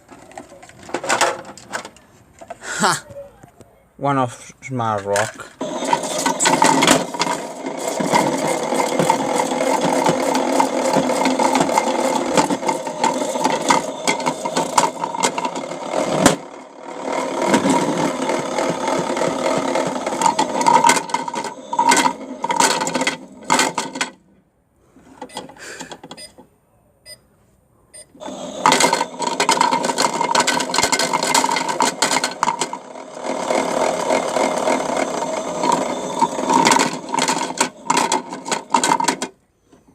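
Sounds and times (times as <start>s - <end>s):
small electric motor humming: 5.6s - 22.6s, 28.2s - 37.9s.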